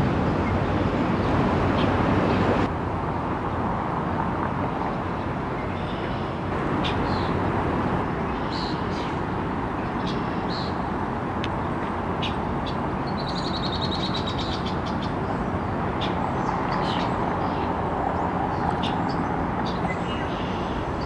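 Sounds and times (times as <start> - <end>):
small birds chirping: 5.6 - 9.2, 11.6 - 21.0.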